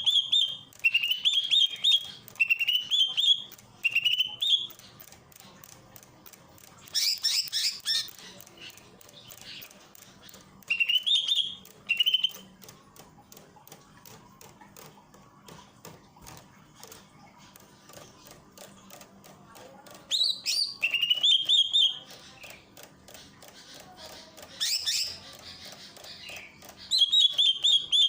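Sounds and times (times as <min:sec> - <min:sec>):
bird singing chattering notes: 0:00.0 - 0:05.8, 0:06.8 - 0:12.7, 0:19.8 - 0:28.0
faint rapid clicks: 0:00.0 - 0:28.0.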